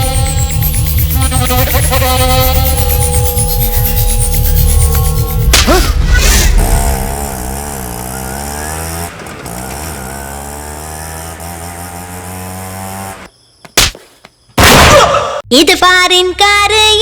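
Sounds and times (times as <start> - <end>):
engine revving: 0.0 - 13.3.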